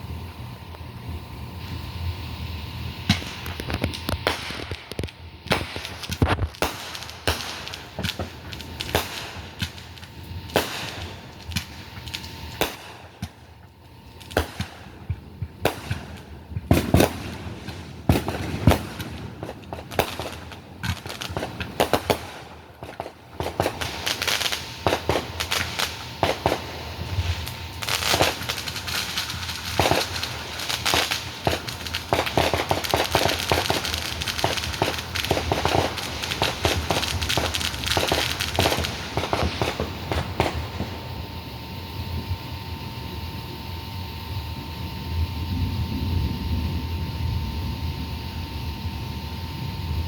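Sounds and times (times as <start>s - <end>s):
fireworks crackling: 0.0s - 50.0s
fireworks bangs and pops: 1.2s - 41.4s.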